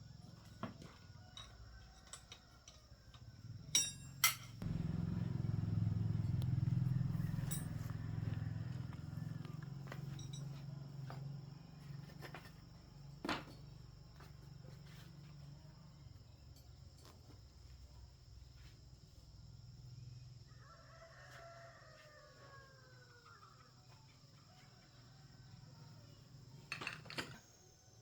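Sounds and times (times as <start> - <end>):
faint rooster crowing: 0.1 - 3.6, 4.6 - 12.2, 20.2 - 26.5
low hum: 4.6 - 10.0.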